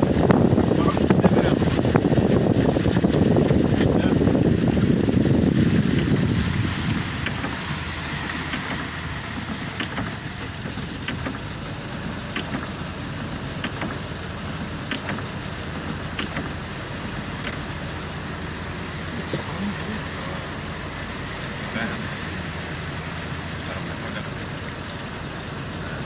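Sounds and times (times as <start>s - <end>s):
rain: 0.0s - 26.0s
vehicle rumble: 0.0s - 26.0s
light sharp ticks: 24.6s - 25.0s.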